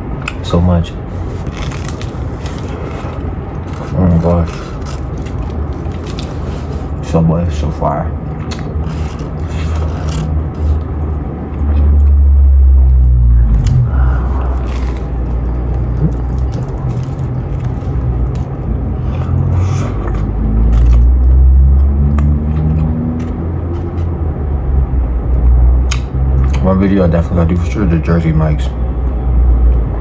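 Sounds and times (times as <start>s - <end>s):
loud low rumble: 0.0s - 30.0s
person chewing food: 1.1s - 7.0s, 8.3s - 24.2s.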